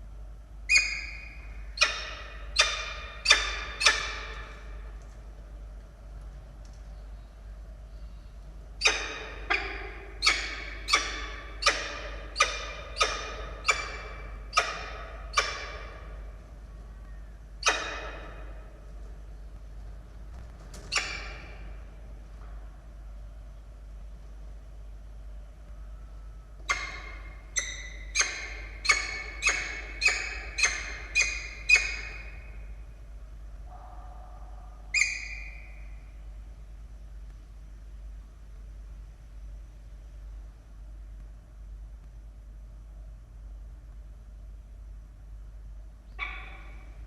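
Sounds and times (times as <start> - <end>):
falcon calling: 0.7 - 4.7, 8.8 - 16.3, 26.6 - 32.6, 33.7 - 36.0, 46.1 - 47.0
falcon harsh calls: 46.2 - 46.9.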